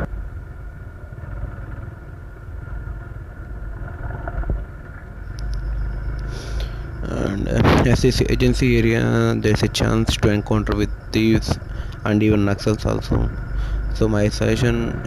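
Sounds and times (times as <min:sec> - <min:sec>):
vehicle engine and road rumble: 0:00.0 - 0:15.0
faint high ticks: 0:05.3 - 0:06.9.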